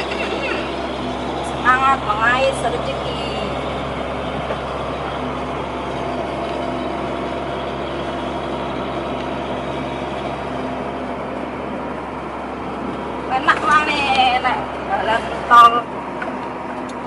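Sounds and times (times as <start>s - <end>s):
diesel truck engine running: 0.0s - 17.0s
road and cab noise: 0.0s - 17.0s.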